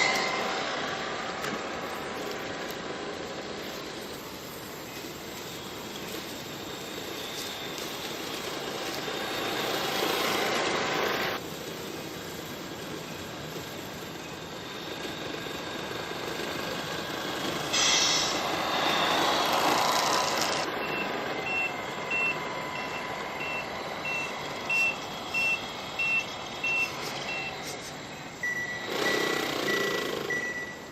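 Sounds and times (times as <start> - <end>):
air hiss: 17.6 - 20.4
reversing beeper beeping: 18.3 - 19.5, 20.6 - 30.9.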